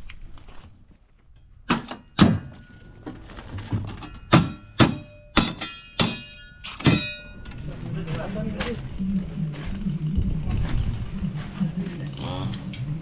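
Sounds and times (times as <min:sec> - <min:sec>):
sharp metallic clanks: 0:01.4 - 0:07.6.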